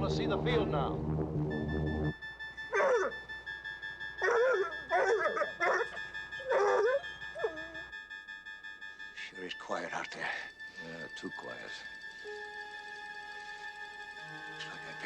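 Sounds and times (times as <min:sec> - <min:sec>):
aircraft engine drone: 0:00.0 - 0:07.9, 0:09.0 - 0:15.0
faint steady high tone: 0:01.5 - 0:15.0
dog howling and yipping: 0:02.7 - 0:03.2, 0:04.2 - 0:07.9.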